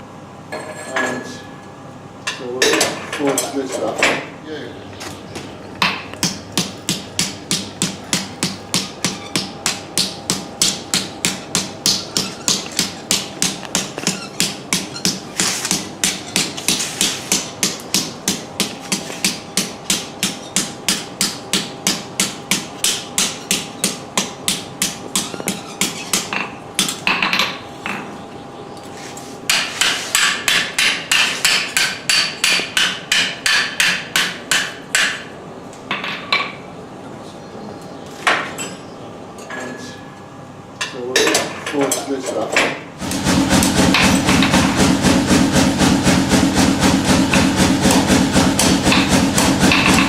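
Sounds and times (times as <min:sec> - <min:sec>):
power hammer forging steel: 0:06.2 - 0:27.1, 0:29.5 - 0:35.2, 0:43.0 - 0:50.0.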